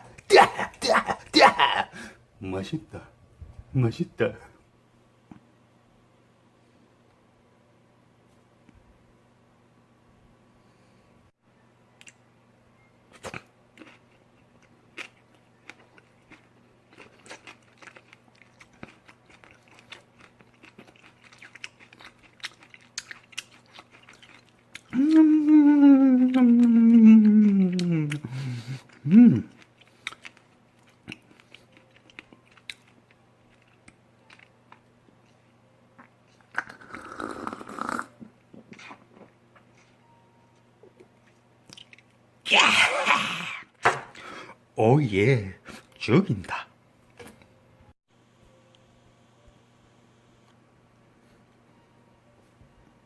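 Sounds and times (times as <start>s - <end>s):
chewing and crunching: 13.1s - 37.7s, 41.0s - 42.2s
person humming mmm: 24.9s - 29.6s.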